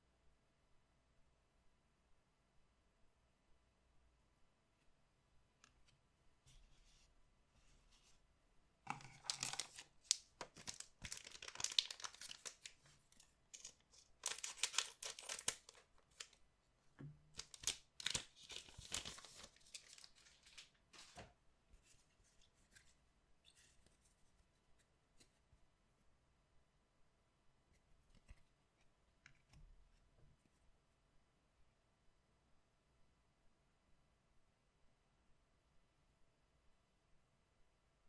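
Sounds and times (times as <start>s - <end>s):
card pack wrapper tearing: 9.0s - 12.8s, 13.5s - 16.4s, 17.4s - 20.7s.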